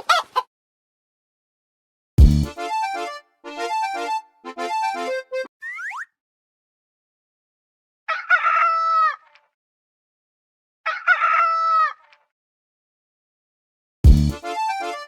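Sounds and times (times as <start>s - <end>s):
rooster crowing: 8.1s - 9.2s, 10.9s - 12.0s.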